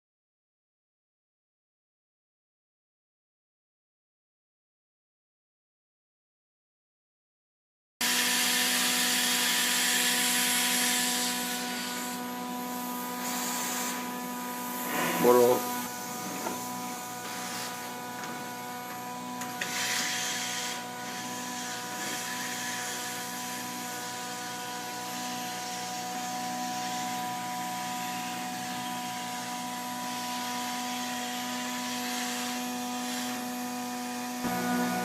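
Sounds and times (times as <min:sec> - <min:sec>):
vacuum motor hum: 0:08.0 - 0:35.0
rushing rubbing noise: 0:14.7 - 0:16.4.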